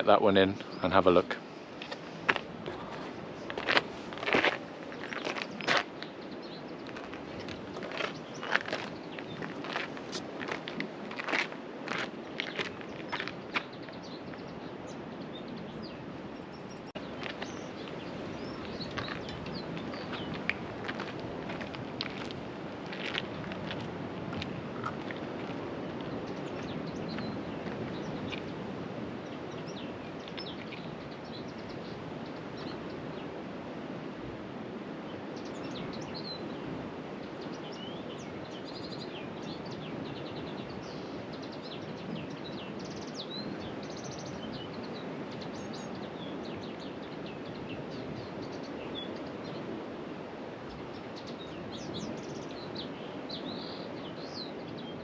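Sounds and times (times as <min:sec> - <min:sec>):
steady rushing noise: 0:00.0 - 0:32.4
small birds chirping: 0:00.0 - 0:33.3, 0:35.4 - 0:49.7, 0:50.7 - 0:55.0.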